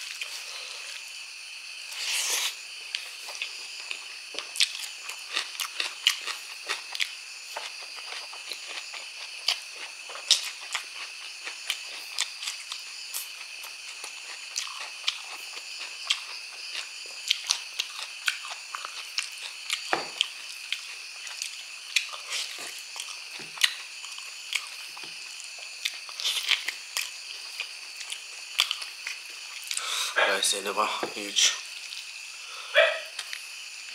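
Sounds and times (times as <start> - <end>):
wet chewing and smacking: 2.9 - 29.8.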